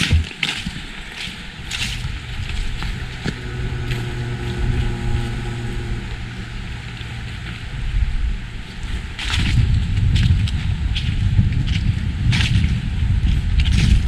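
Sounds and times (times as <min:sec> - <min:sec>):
footstep on dry leaves: 0:00.0 - 0:05.0
vehicle engine drone: 0:00.0 - 0:14.0.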